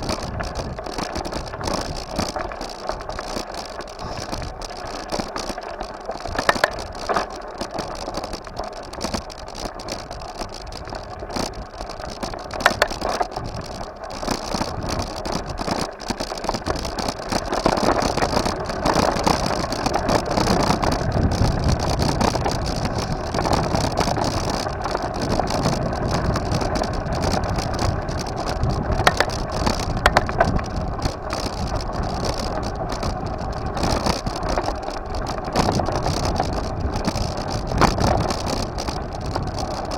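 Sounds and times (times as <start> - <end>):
bike riding noise: 0.0 - 39.9
rattles and knocks: 6.3 - 7.4.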